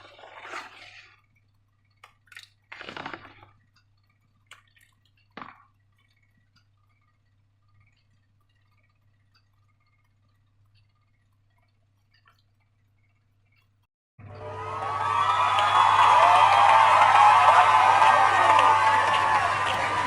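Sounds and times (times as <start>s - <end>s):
faint clicks and taps: 1.2s - 13.9s
low steady hum: 3.3s - 20.0s.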